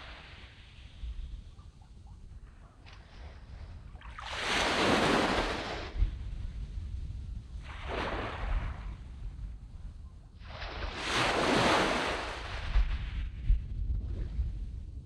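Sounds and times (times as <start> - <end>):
sea waves breaking on sand: 4.1 - 6.0, 7.6 - 9.0, 10.4 - 13.4.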